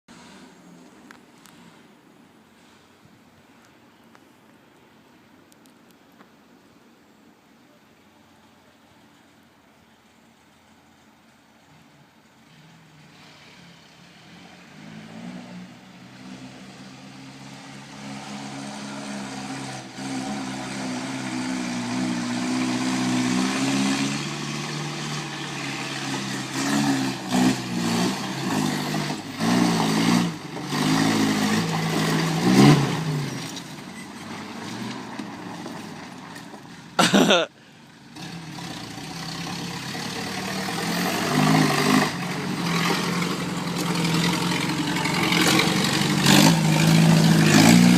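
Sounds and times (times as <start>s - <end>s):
off-road engine revving: 11.7s - 37.2s, 38.0s - 47.9s.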